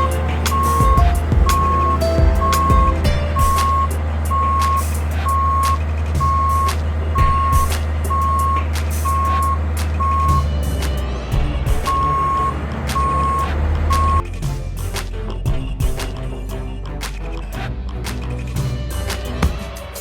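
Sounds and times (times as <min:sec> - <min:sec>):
motion alarm beeping: 0:00.0 - 0:10.4, 0:11.9 - 0:14.2
engine running steadily: 0:00.0 - 0:14.2.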